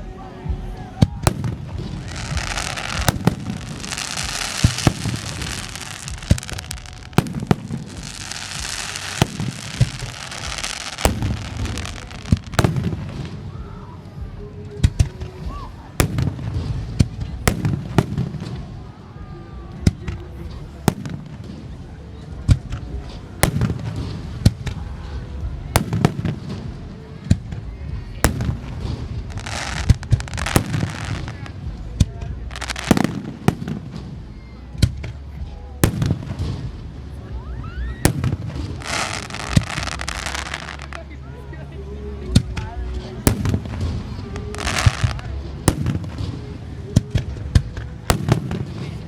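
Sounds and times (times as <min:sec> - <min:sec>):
firework hissing crackle: 0:00.0 - 0:19.0, 0:19.8 - 0:37.3, 0:38.0 - 0:41.2, 0:42.3 - 0:49.0
firework shells booming: 0:00.5 - 0:13.5, 0:25.4 - 0:37.1.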